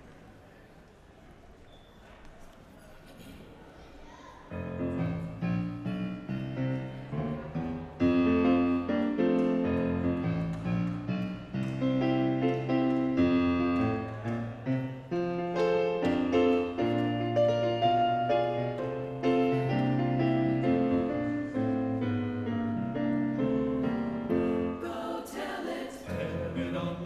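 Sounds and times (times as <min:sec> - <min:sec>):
piano playing chords: 0:04.6 - 0:25.3.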